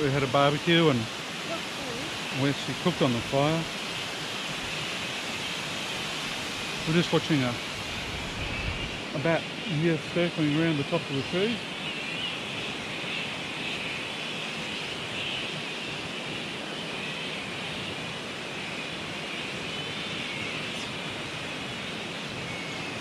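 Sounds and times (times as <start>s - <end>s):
waterfall rushing: 0.0s - 11.7s
flying foxes chattering: 0.0s - 23.0s.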